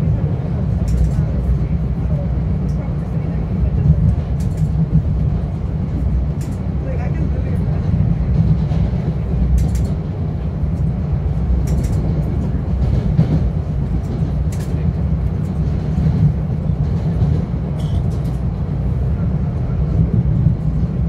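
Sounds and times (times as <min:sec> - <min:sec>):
train rumbling on track: 0:00.0 - 0:21.0.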